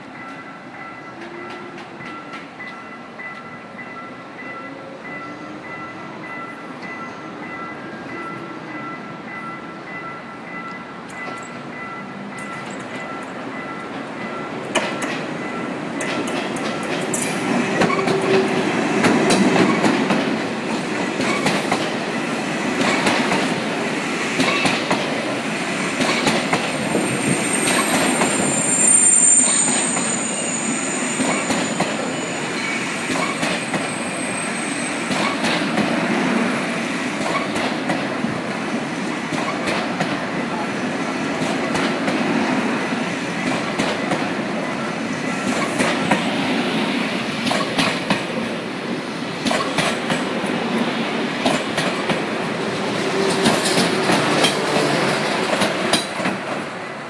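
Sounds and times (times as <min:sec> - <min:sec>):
high-speed train passing: 0:00.0 - 0:57.0
high wheel squeal: 0:26.7 - 0:35.4.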